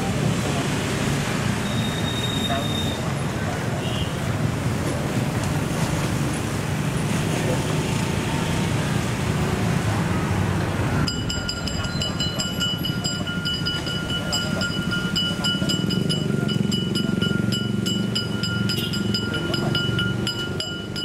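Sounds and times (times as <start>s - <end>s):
steady high-pitched tone: 11.0s - 21.0s
train rumbling over tracks: 11.1s - 21.0s.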